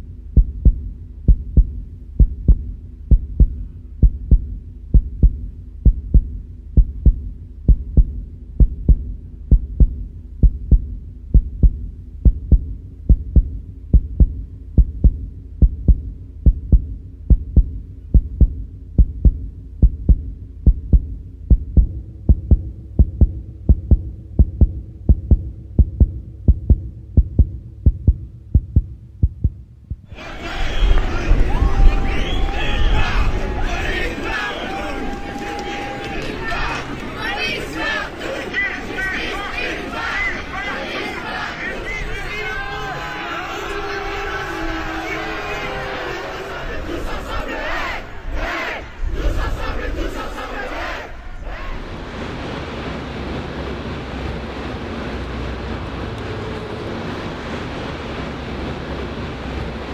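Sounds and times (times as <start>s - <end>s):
heartbeat thumps: 0.0s - 33.8s
low sustained drone: 51.8s - 59.9s.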